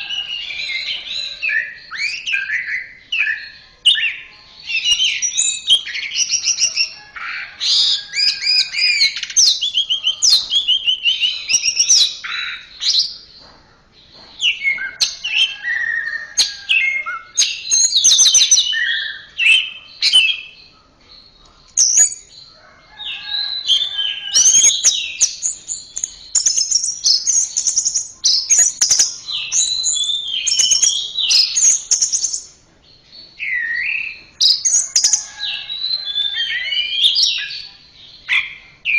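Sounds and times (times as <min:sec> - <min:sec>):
thrush singing whistled phrases: 0:24.4 - 0:32.5.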